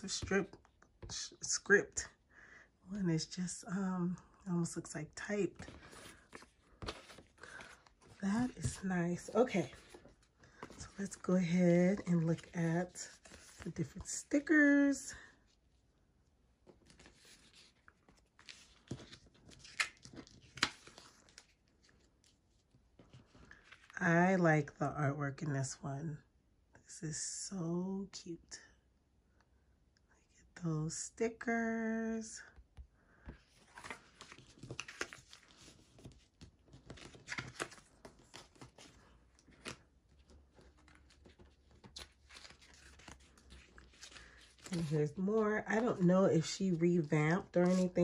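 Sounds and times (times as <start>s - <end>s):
paper rustling: 5.5s - 14.3s, 16.7s - 22.4s, 33.2s - 48.0s.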